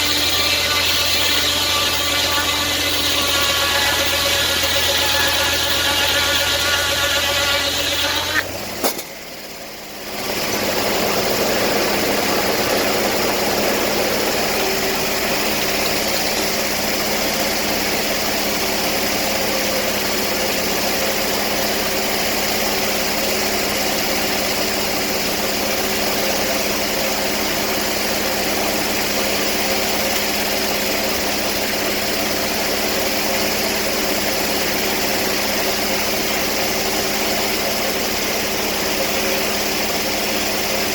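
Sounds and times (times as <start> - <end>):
sawmill engine running: 0.0 - 40.9
sharp click: 8.8 - 9.2.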